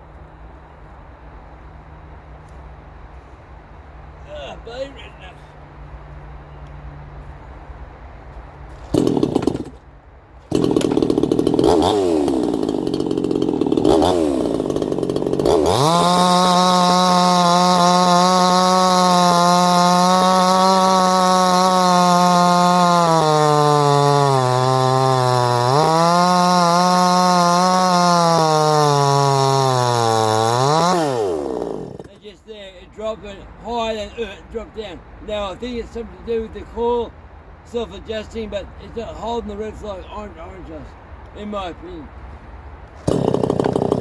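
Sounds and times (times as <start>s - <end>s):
two-stroke chainsaw revving: 8.9s - 9.8s, 10.5s - 32.2s, 43.0s - 44.0s.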